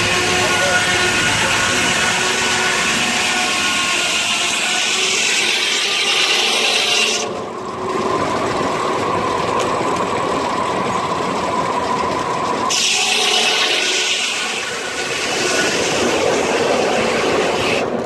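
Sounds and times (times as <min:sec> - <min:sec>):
sawmill blade cutting log: 0:00.0 - 0:17.9.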